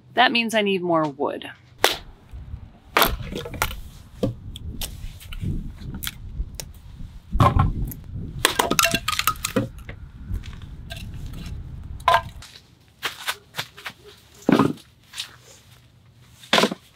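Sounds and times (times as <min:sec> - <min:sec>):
crunching and handling rumble: 0:01.6 - 0:16.9
dry sticks snapping: 0:05.9 - 0:06.7.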